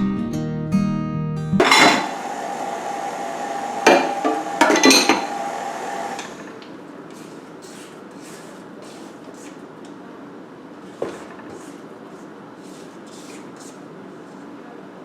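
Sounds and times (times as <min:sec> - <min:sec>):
utensils clinking against bowl: 0:01.6 - 0:02.2, 0:03.8 - 0:05.6
faint scraping strokes: 0:07.1 - 0:09.7, 0:10.8 - 0:14.7.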